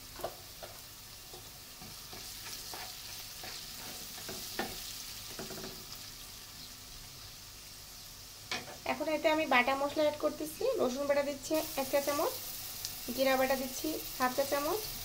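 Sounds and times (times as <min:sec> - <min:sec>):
onions sizzling in hot oil: 0:00.0 - 0:15.0
wooden spatula scraping a pan: 0:00.2 - 0:05.8.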